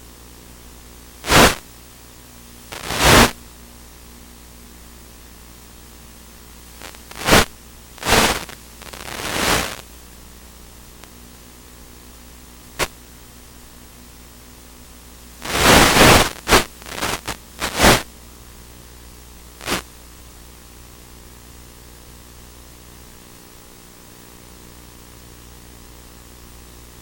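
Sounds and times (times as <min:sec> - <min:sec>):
faint steady hiss and hum: 0:00.0 - 0:27.0
bursts of white-noise static: 0:01.1 - 0:03.4, 0:05.5 - 0:11.4, 0:12.5 - 0:13.0, 0:15.0 - 0:20.0.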